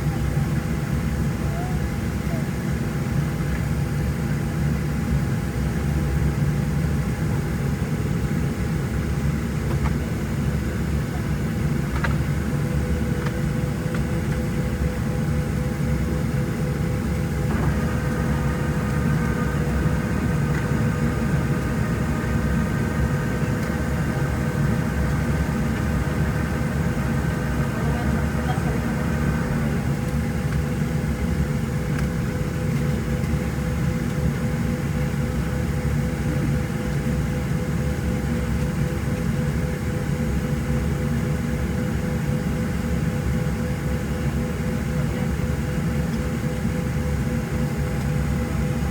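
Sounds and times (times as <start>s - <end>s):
airplane cabin low rumble: 0.0s - 48.9s
high steady whine: 16.1s - 33.2s.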